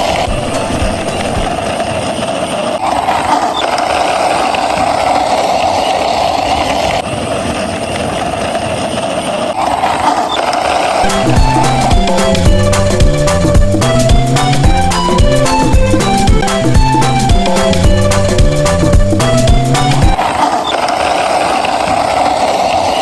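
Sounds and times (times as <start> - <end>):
mechanical running noise: 0.0 - 23.0
music with drums: 11.1 - 20.2.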